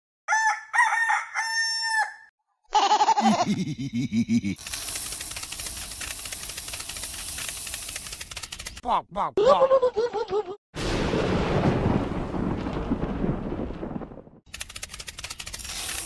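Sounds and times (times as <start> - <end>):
rooster crowing: 0.3 - 2.3.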